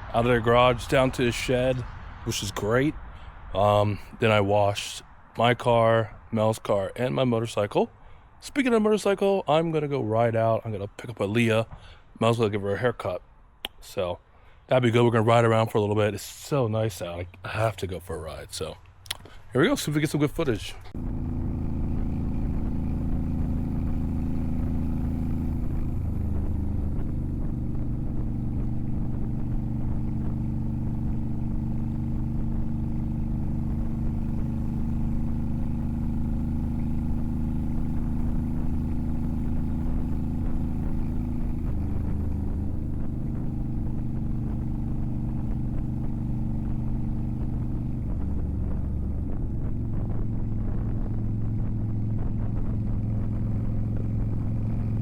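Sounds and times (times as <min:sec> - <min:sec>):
motorcycle engine running: 0:20.4 - 0:55.0.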